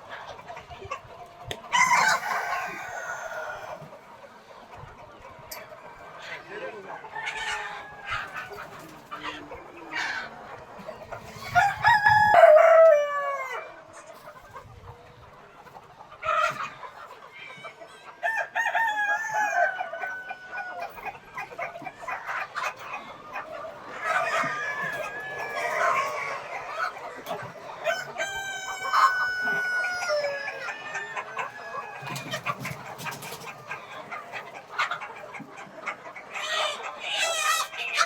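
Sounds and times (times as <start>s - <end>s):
hens clucking: 0.0s - 38.0s
roosters crowing: 1.6s - 3.9s, 6.4s - 13.8s, 18.2s - 22.9s, 23.9s - 33.7s.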